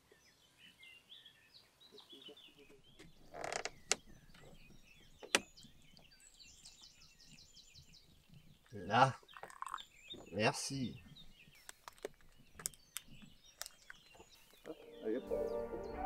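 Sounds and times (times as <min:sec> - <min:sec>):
small birds chirping and singing: 0:00.0 - 0:16.0.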